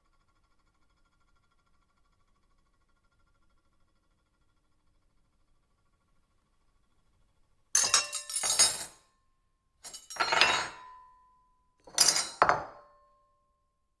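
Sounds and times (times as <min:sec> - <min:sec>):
silverware clattering on plate: 0:07.8 - 0:09.0, 0:09.9 - 0:11.1, 0:11.9 - 0:13.0.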